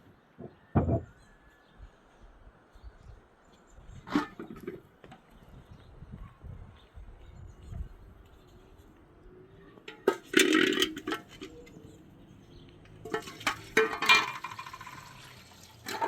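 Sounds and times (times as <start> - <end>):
dishes clinking and knocking: 0.4 - 1.2, 13.1 - 15.2.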